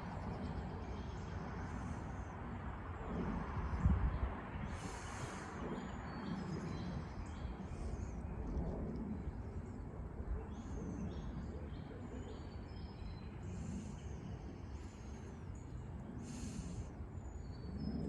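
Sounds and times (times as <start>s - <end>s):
low background rumble: 0.0s - 18.0s
small birds chirping: 9.3s - 18.0s.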